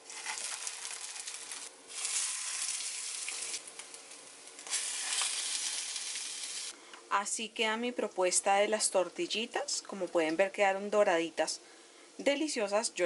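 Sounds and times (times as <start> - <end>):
patties sizzling in oil: 0.0 - 6.8.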